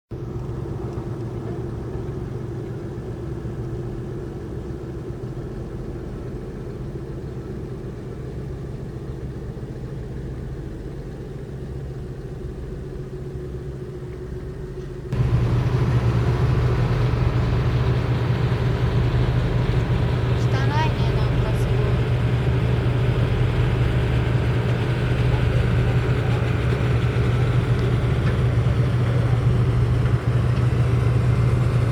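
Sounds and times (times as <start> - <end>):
boat engines rumbling: 0.1 - 31.9.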